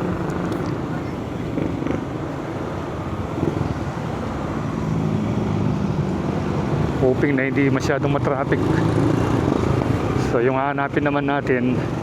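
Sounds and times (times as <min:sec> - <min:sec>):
road and wind noise: 0:00.0 - 0:12.0
vehicle engine rumbling: 0:00.0 - 0:12.0.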